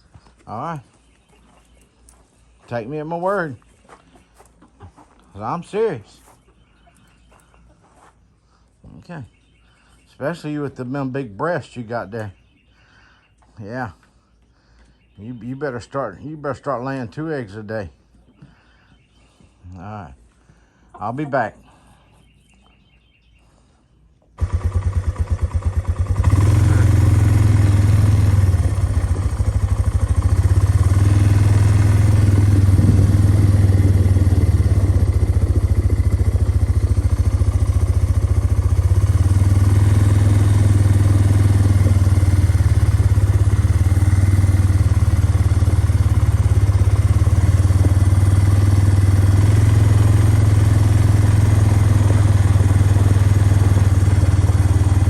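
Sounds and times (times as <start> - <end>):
small engine running: 24.4 - 55.0.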